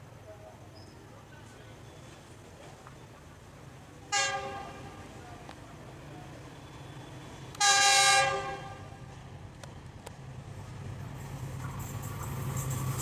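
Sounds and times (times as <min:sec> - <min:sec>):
locomotive rumble: 0:00.0 - 0:13.0
locomotive horn blast: 0:04.1 - 0:05.0, 0:07.6 - 0:09.0.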